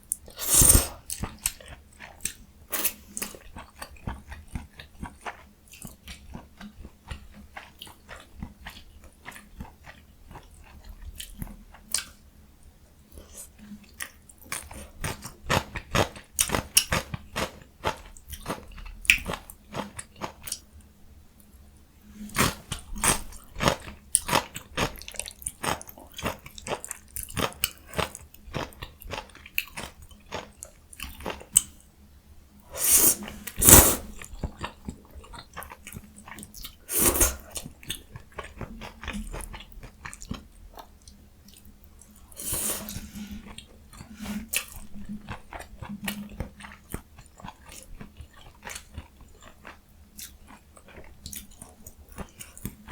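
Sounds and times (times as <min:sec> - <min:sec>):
loud mouth sounds: 0:00.4 - 0:01.0, 0:32.8 - 0:34.2, 0:36.9 - 0:37.4.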